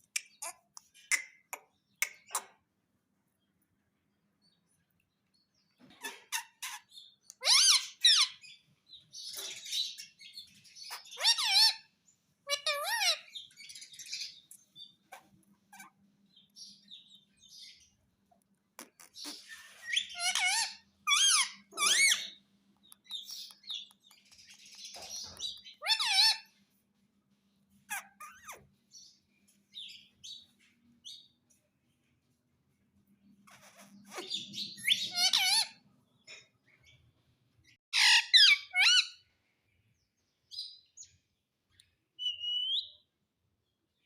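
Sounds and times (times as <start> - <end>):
parrot chirping and warbling: 0.0 - 2.6, 6.0 - 8.5, 9.3 - 16.0, 18.8 - 26.6, 27.9 - 28.7, 33.4 - 35.8, 37.9 - 39.2.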